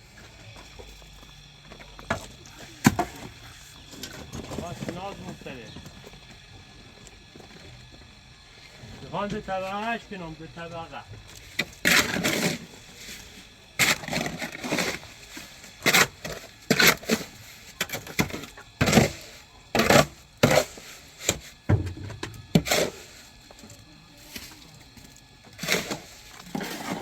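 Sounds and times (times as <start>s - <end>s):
scraping: 24.2s - 27.0s.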